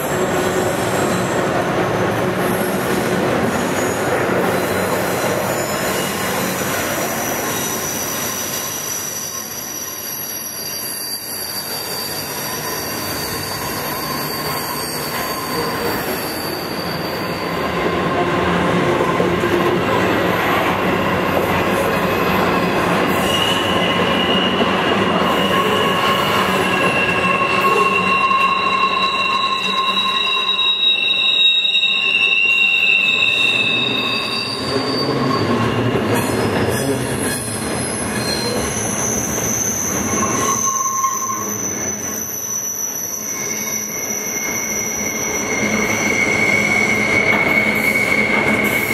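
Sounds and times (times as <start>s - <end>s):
rumble of train: 0.0s - 48.9s
train wheels squealing on rails: 0.0s - 48.9s.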